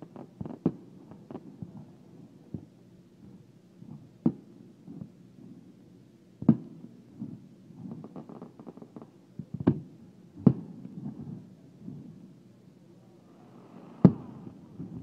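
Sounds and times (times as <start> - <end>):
small firework pops: 0.0 - 1.9, 2.5 - 5.2, 6.4 - 11.5, 13.7 - 15.0
firework shell booms: 14.0 - 15.0.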